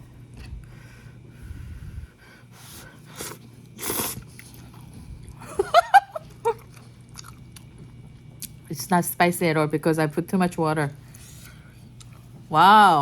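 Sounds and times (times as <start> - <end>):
slurping noodle soup: 3.1 - 4.8.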